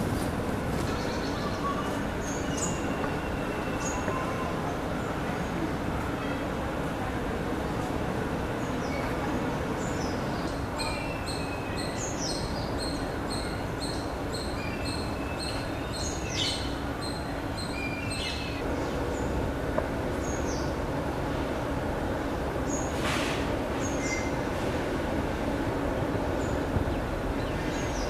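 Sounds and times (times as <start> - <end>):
birds chirping: 0.8 - 6.4, 8.6 - 19.4.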